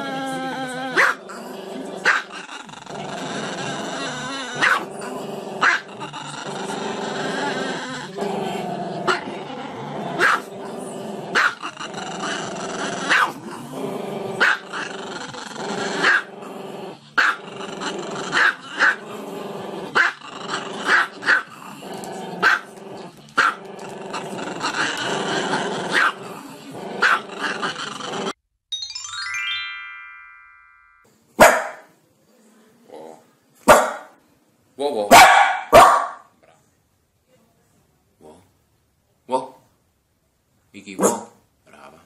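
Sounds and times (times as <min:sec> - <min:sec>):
dog growling: 0:00.0 - 0:28.4
dog barking: 0:01.0 - 0:01.2, 0:04.6 - 0:04.9, 0:05.6 - 0:05.8, 0:10.2 - 0:10.5, 0:11.4 - 0:11.6, 0:13.1 - 0:13.4, 0:14.4 - 0:14.6, 0:22.4 - 0:22.6, 0:25.9 - 0:26.2, 0:31.4 - 0:31.9, 0:33.7 - 0:34.1, 0:35.1 - 0:36.3, 0:41.0 - 0:41.4.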